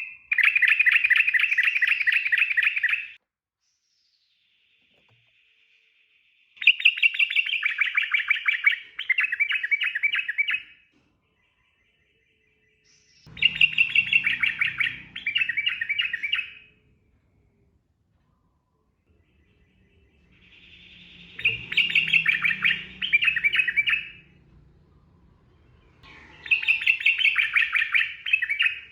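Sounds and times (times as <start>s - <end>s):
bird singing fast repeated notes: 0.0s - 3.2s, 6.4s - 10.7s, 11.4s - 17.1s, 19.1s - 28.9s.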